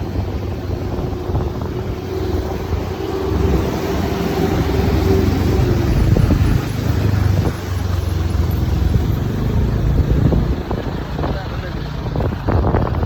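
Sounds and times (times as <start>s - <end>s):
road and wind noise: 0.0s - 13.0s
scooter engine running: 0.0s - 13.0s.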